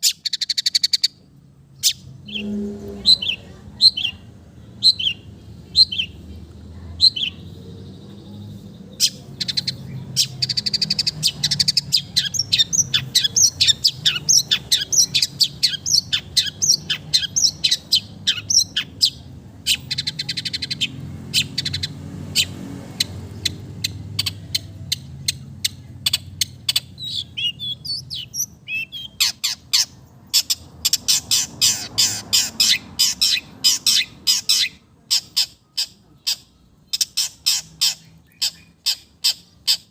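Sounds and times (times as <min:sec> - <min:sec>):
steady bird whistle: 0:01.8 - 0:04.1
shrike singing harsh chattering notes: 0:01.8 - 0:06.2.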